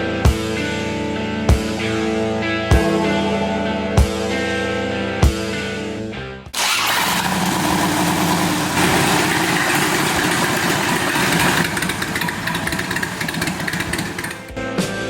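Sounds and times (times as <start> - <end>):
motorcycle engine idling: 7.3 - 14.5.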